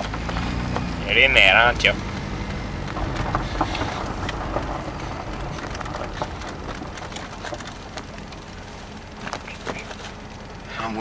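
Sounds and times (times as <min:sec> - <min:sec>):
car rumbling: 0:00.0 - 0:11.0
small clicks and knocks: 0:02.0 - 0:10.5.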